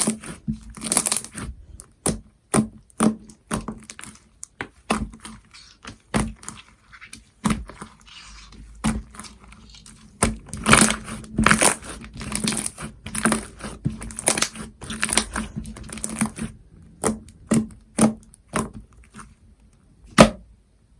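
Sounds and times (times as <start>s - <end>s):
hands squishing slime: 0.0s - 19.4s.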